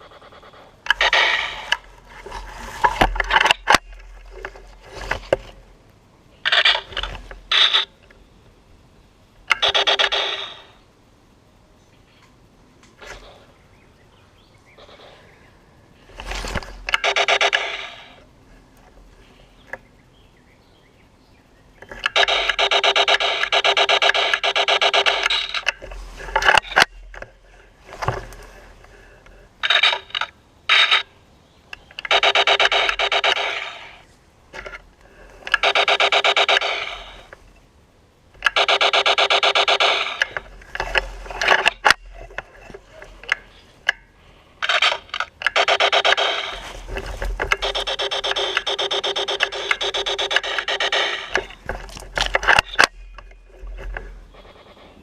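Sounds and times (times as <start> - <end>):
laser tag blaster firing: 22.1 - 25.6, 38.5 - 40.4, 47.5 - 51.6.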